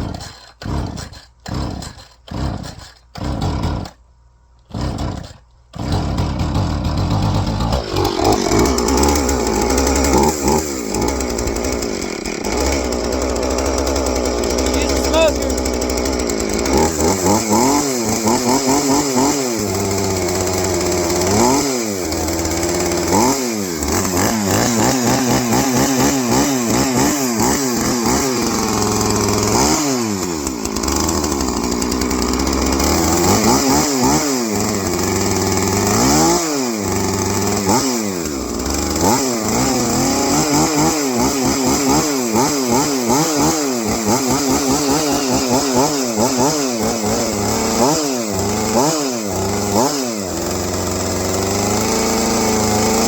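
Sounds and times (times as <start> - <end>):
chainsaw engine revving: 0.0 - 53.0.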